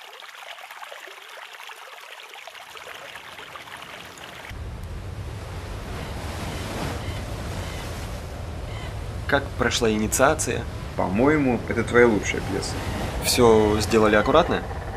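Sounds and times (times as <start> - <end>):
stream trickling over sand: 0.0 - 4.6
wind and waves rushing: 3.7 - 14.9
deep rumble: 4.5 - 14.9.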